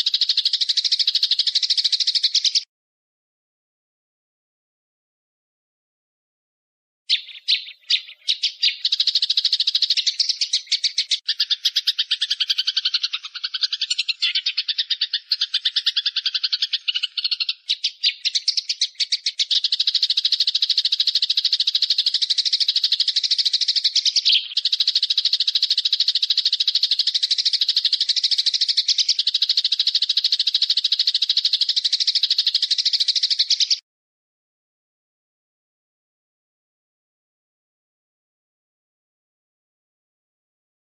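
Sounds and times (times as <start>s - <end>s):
songbird rattling trill: 0.0s - 2.6s, 7.1s - 33.8s.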